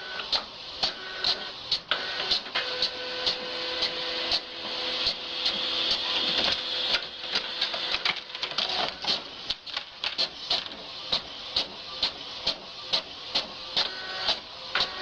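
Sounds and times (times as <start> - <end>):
printer whirring: 0.0 - 15.0
printer clicking: 6.0 - 12.6.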